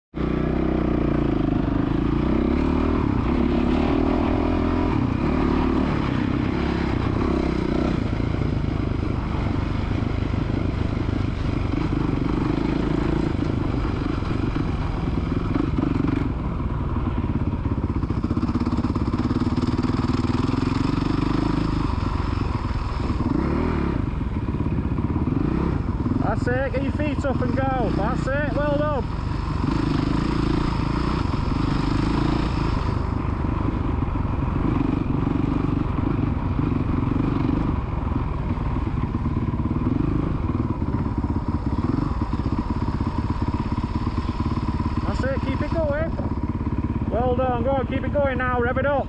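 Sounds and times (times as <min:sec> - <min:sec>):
dirt bike engine revving: 0:00.2 - 0:49.0.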